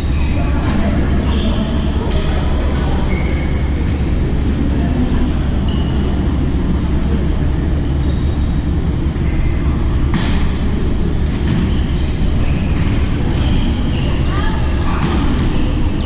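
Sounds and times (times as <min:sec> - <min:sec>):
steady low rumble: 0:03.6 - 0:16.0
shoe squeaks on court: 0:11.6 - 0:16.0.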